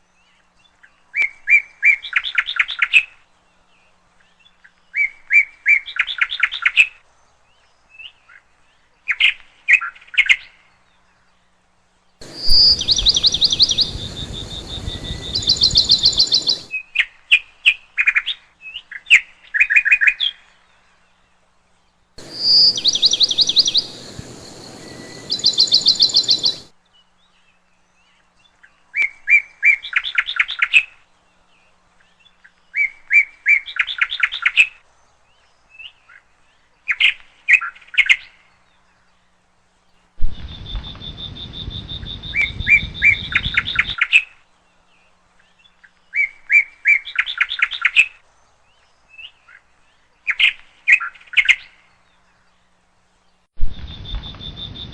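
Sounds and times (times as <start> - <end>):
parrots chirping: 12.2 - 16.7, 22.2 - 26.7
high whistle-like tone: 22.2 - 26.7.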